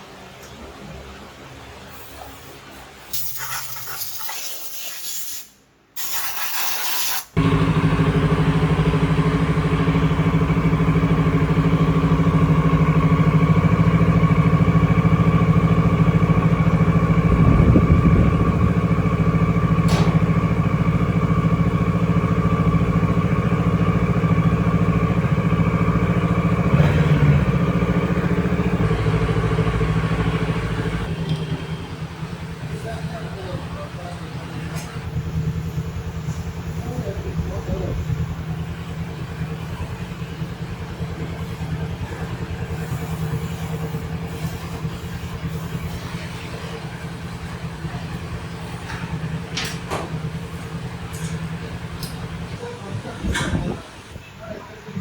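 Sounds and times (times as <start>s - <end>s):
hissing spray: 2.0s - 7.4s
motorcycle engine idling: 7.4s - 54.8s.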